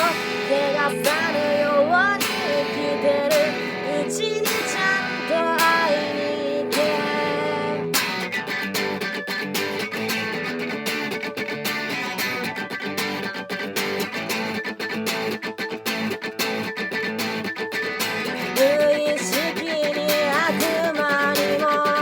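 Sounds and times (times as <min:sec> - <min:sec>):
person singing: 0:00.0 - 0:08.6, 0:18.4 - 0:22.0
guitar strumming: 0:00.0 - 0:22.0.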